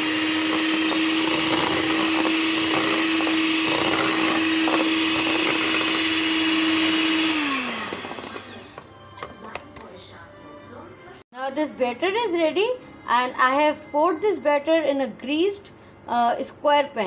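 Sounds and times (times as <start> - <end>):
electric mixer whirring: 0.0 - 9.6.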